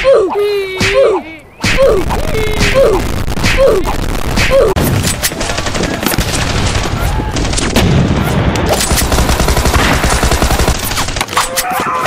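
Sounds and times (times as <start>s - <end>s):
machine-gun fire: 2.7s - 11.4s.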